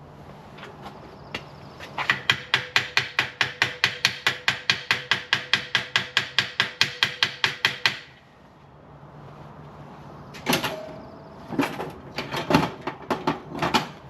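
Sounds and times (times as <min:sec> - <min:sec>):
hammer tapping on steel frame: 0:02.0 - 0:08.1.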